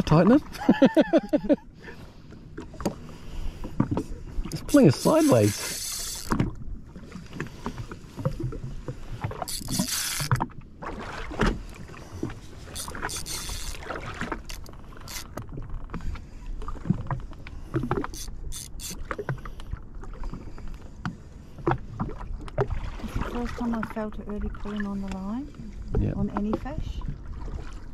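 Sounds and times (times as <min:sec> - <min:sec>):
water splashing against hull: 0:00.0 - 0:27.9.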